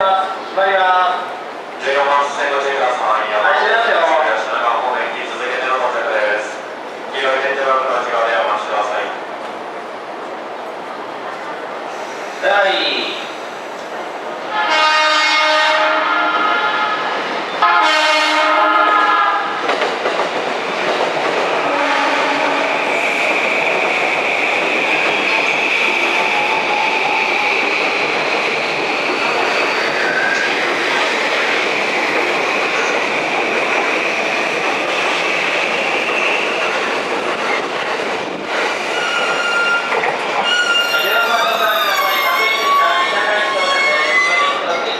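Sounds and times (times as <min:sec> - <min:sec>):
train rail noise: 0:00.0 - 0:44.9
train horn blasts: 0:14.5 - 0:19.6, 0:21.6 - 0:22.8.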